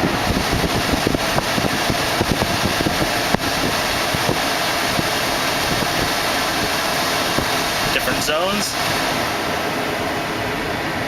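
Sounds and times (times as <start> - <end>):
car engine idling: 0.0 - 11.0
climate control fan blowing: 0.0 - 11.0.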